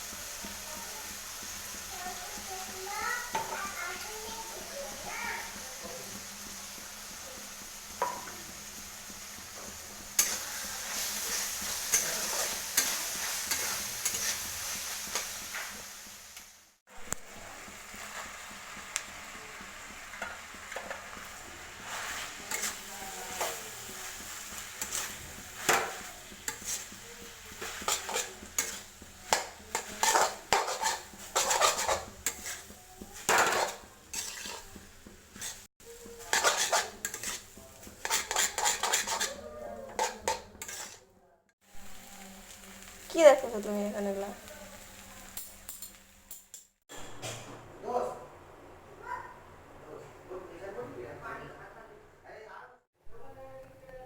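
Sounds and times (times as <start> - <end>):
spatula scraping a pan: 0.0 - 16.2, 17.6 - 41.1
food sizzling in a frying pan: 0.0 - 47.4.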